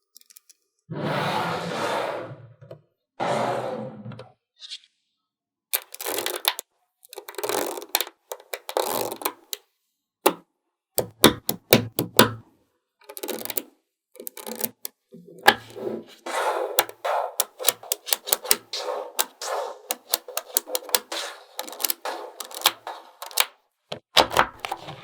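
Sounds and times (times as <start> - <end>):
magnetic balls clicking together: 5.8 - 9.6, 11.0 - 12.4, 13.1 - 13.6, 14.2 - 14.9, 16.8 - 23.5.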